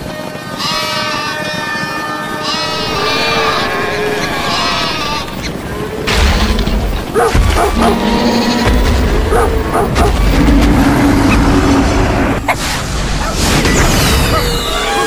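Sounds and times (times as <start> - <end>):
animal calls: 2.5 - 15.0
heavy low rumble: 2.6 - 14.2.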